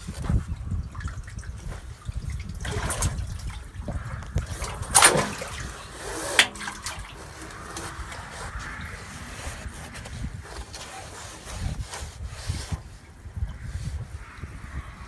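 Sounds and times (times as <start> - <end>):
water splashing: 0.0 - 14.8
steady low rumble: 0.3 - 11.9.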